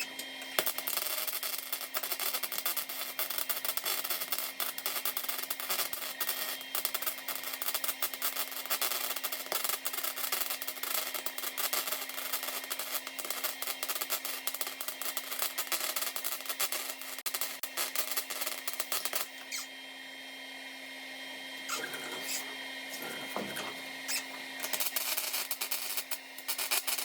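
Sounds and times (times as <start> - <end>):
welding arc crackling: 0.0 - 19.7, 21.7 - 27.0.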